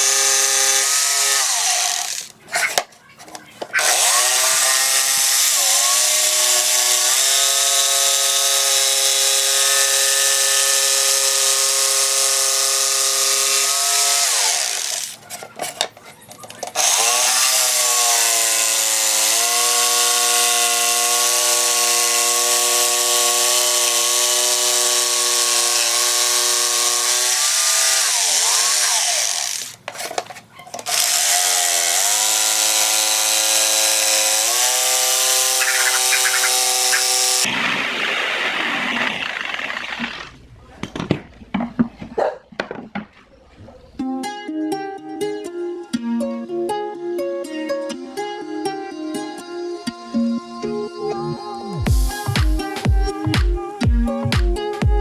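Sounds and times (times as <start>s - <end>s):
electric power tool whining: 0.0s - 40.4s, 51.9s - 55.0s.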